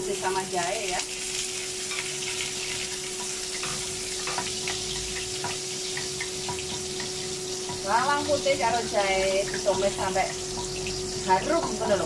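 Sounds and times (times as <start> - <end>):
garlic sizzling in hot oil: 0.0 - 12.0.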